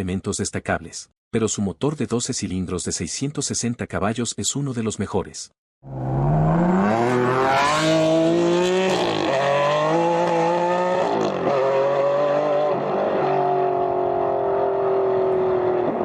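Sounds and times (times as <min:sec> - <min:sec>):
sports car engine accelerating: 0:05.9 - 0:16.0.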